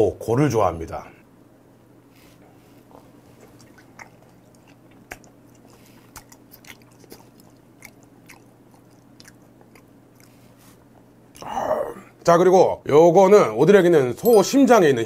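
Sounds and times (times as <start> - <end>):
person chewing wet food: 2.5 - 11.6
wet mouth clicks and smacks: 3.5 - 10.3.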